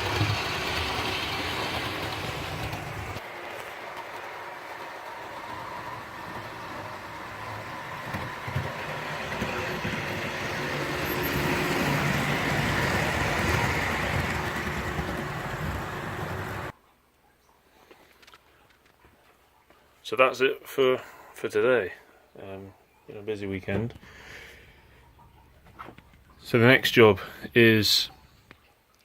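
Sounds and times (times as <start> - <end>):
model train running on track: 0.0 - 16.7.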